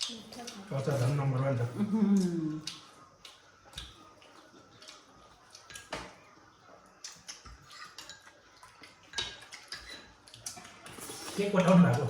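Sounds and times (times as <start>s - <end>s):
spoons clinking on bowls: 7.6s - 12.0s.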